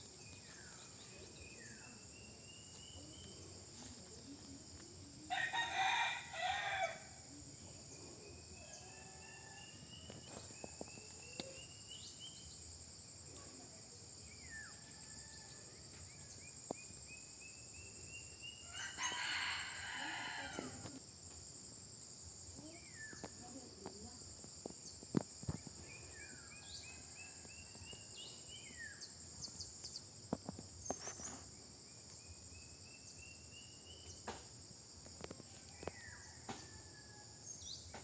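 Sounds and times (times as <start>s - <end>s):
high-pitched insect chorus: 0.0s - 38.0s
rooster crowing: 5.3s - 7.2s, 8.6s - 9.9s, 18.7s - 21.0s.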